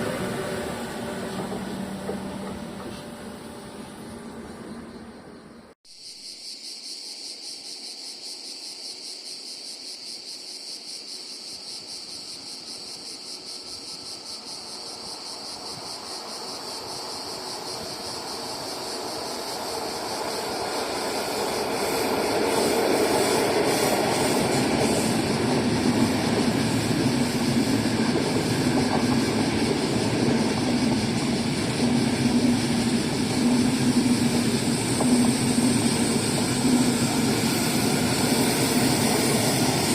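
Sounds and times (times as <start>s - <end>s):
train approaching: 0.0s - 5.8s, 11.4s - 39.9s.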